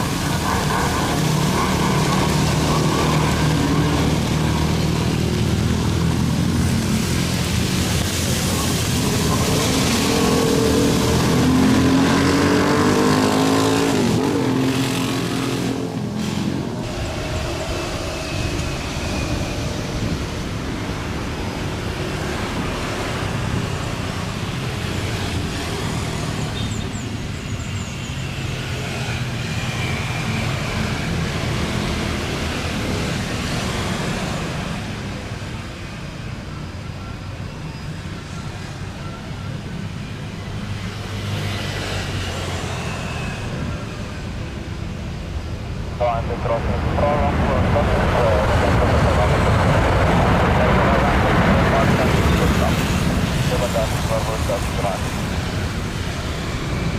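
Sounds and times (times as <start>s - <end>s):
engine rumble and hiss: 0.0s - 56.9s.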